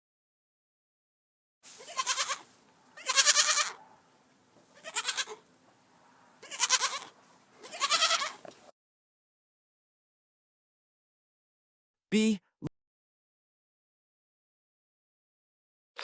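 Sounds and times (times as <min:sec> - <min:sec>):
goat bleating: 0:01.8 - 0:04.0, 0:04.7 - 0:05.4, 0:06.4 - 0:08.5.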